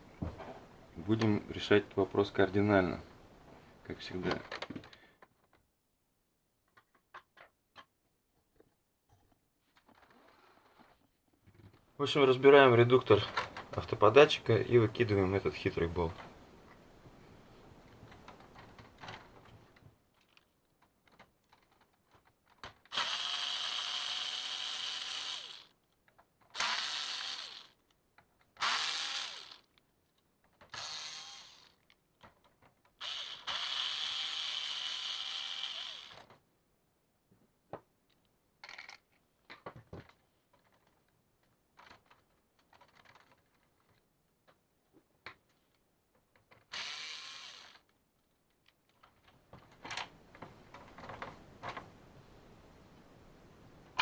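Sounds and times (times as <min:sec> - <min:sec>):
plastic parts clicking: 0:18.1 - 0:23.5, 0:38.1 - 0:44.6
electric screwdriver whirring: 0:22.9 - 0:25.7, 0:26.6 - 0:27.8, 0:28.6 - 0:29.7, 0:30.7 - 0:31.8, 0:33.0 - 0:36.3, 0:46.7 - 0:47.9.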